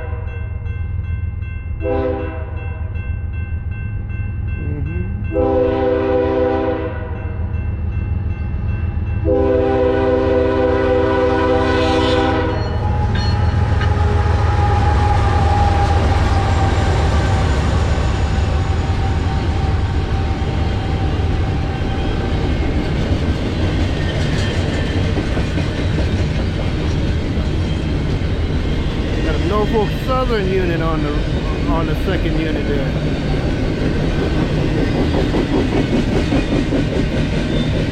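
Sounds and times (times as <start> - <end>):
train horn blasts: 0.0 - 0.4, 1.8 - 2.7, 4.6 - 7.3, 9.2 - 16.2
train wheels rumbling on rail: 1.0 - 37.9.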